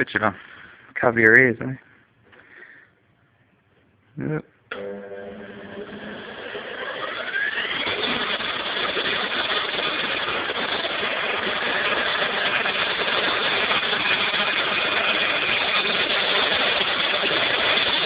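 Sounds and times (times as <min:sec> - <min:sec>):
bench grinder whining: 0:04.7 - 0:18.0.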